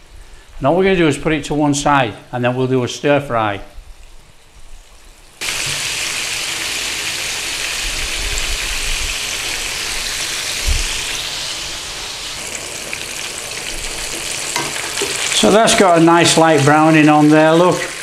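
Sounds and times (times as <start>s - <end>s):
fish frying in hot oil: 5.0s - 18.0s.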